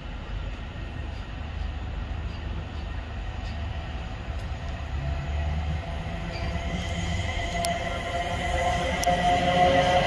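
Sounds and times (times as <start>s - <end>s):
train wheels rumbling on rail: 0.0s - 10.0s
high-pitched squeal: 5.7s - 10.0s.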